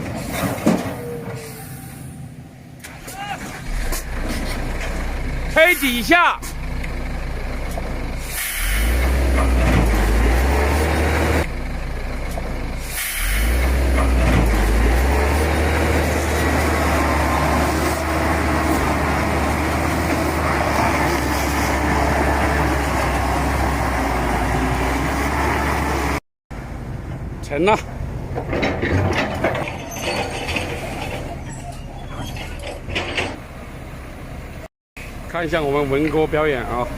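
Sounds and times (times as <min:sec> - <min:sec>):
heavy truck engine rumbling: 0:00.0 - 0:36.9
air hissing: 0:08.2 - 0:09.0, 0:12.8 - 0:13.6.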